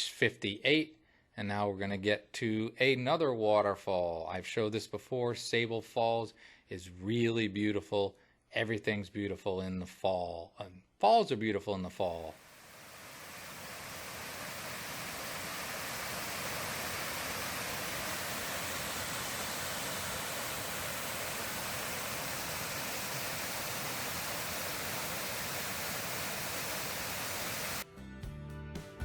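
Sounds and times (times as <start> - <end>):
waterfall roaring: 12.4 - 27.8
music: 27.8 - 29.0.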